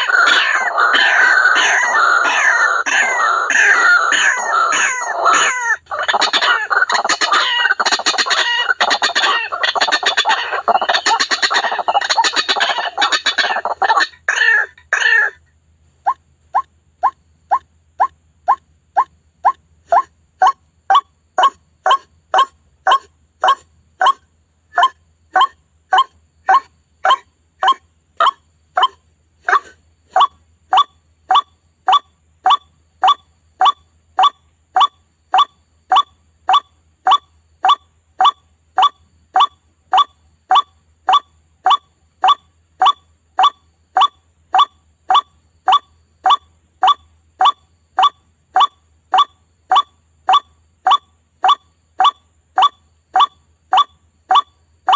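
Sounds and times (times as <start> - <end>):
waterhen calls: 0.0 - 15.4.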